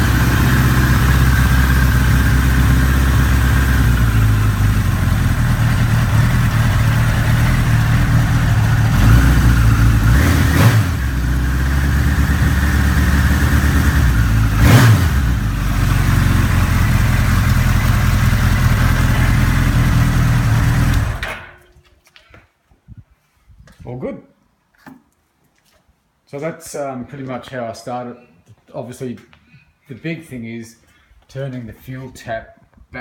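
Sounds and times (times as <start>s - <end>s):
motorcycle engine running: 0.0s - 21.3s.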